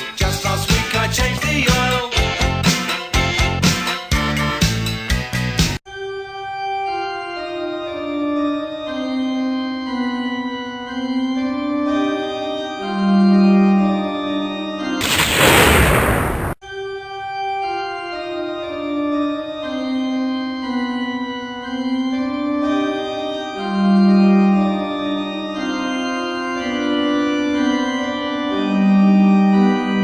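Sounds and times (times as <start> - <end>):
organ music: 0.0 - 15.1, 17.1 - 30.0
loud rushing noise burst: 15.0 - 16.6.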